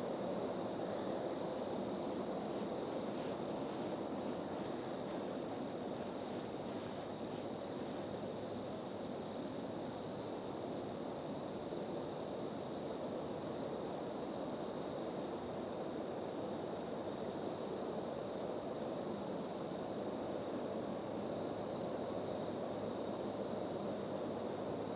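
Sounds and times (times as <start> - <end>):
low rush of background noise: 0.5 - 9.6.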